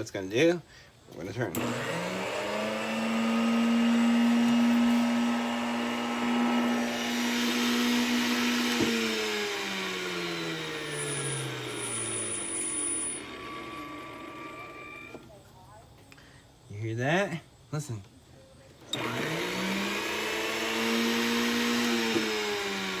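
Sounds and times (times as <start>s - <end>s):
vacuum cleaner motor whine: 1.4s - 15.4s, 18.8s - 23.0s.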